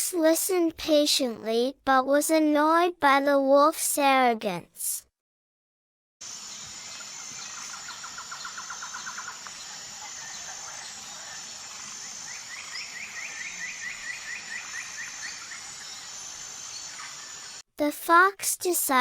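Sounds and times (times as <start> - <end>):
steady high hiss: 6.2 - 17.6
rapid bird trills: 6.5 - 17.6.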